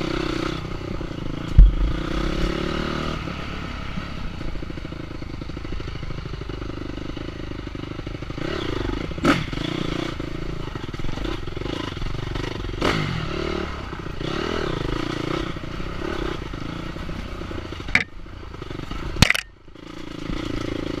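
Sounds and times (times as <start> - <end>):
dirt bike engine revving: 0.0 - 4.8, 8.2 - 21.0
sharp knocks and clatter: 1.5 - 2.7, 17.9 - 18.1, 19.2 - 19.5.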